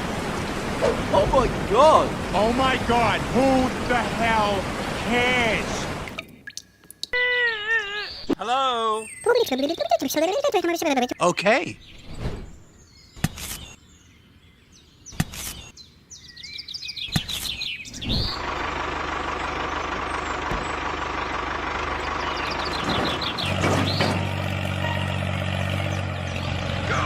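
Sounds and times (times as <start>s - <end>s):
birds chirping: 0.2s - 27.0s
deep engine note: 18.0s - 27.0s
vehicle engine running: 18.0s - 27.0s.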